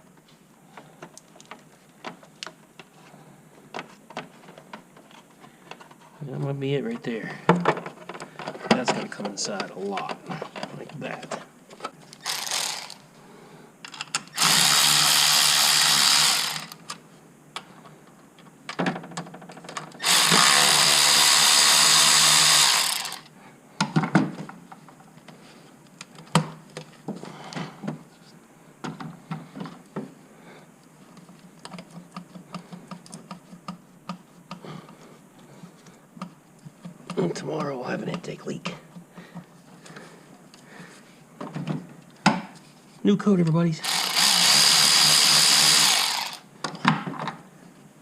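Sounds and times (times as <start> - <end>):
light clicks and knocks of parts: 0.2 - 12.2, 30.8 - 43.6
power drill running: 12.2 - 13.0, 14.3 - 16.8, 20.0 - 23.3, 43.8 - 46.5.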